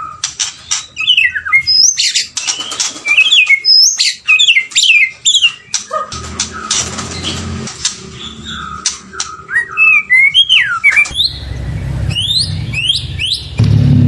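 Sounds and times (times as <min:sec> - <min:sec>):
bird singing whistles: 0:00.9 - 0:05.8, 0:08.2 - 0:13.6
low rumble: 0:11.1 - 0:14.0.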